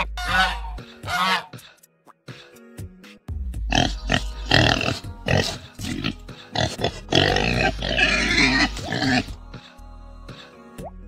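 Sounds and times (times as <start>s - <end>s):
background music: 0.0s - 11.0s
pig grunting squeals: 3.7s - 9.4s.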